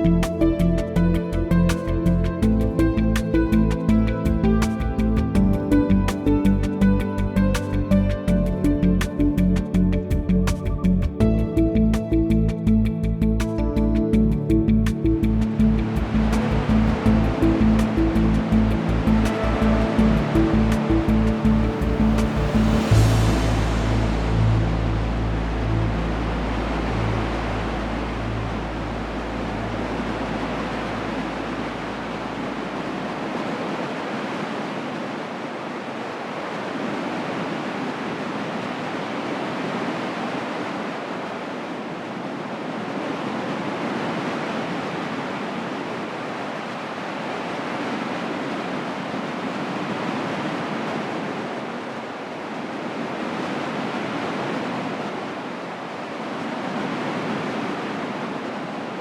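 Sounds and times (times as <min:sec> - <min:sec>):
low rumble: 0:00.0 - 0:33.1.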